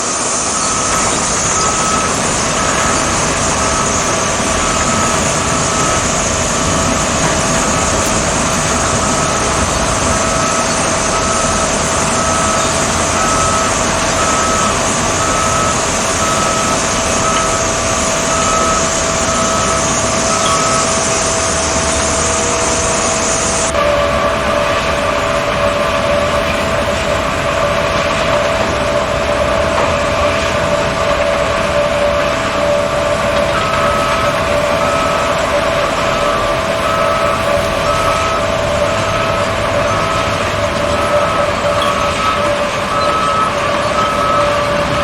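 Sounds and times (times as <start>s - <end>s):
repeating beep: 0.5s - 21.7s, 36.1s - 45.0s.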